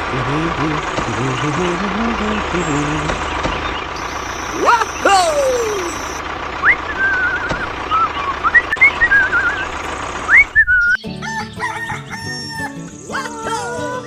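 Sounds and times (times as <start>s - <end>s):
warbling whistle-like chirps: 4.0s - 11.0s.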